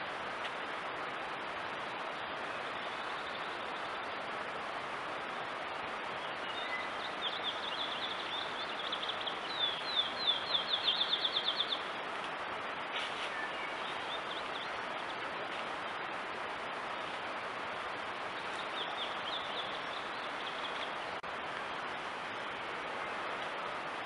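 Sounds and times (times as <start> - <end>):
steady hiss: 0.0 - 24.0
songbird singing: 2.1 - 4.1, 6.1 - 12.0, 12.9 - 15.6, 18.2 - 21.2.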